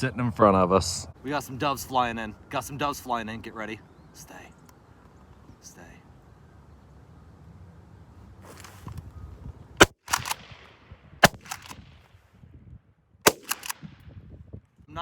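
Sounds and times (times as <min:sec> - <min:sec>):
shotgun shots: 0:09.8 - 0:12.0, 0:13.2 - 0:14.0
faint echoing cracks: 0:13.3 - 0:14.0.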